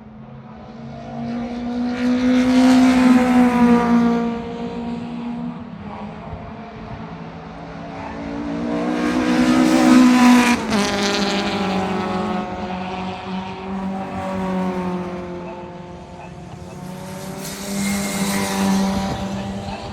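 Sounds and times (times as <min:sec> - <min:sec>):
racing car passing at speed: 0:00.1 - 0:19.9.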